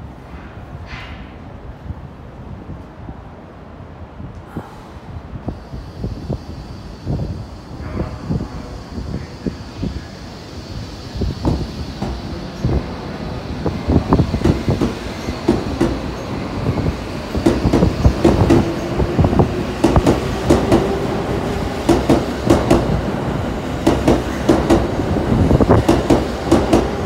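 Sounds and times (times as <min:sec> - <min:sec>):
train rumble: 0:00.0 - 0:27.0
train wheels clacking over rail joints: 0:11.5 - 0:12.3, 0:14.2 - 0:16.3, 0:17.3 - 0:21.0, 0:21.7 - 0:23.0, 0:23.8 - 0:27.0.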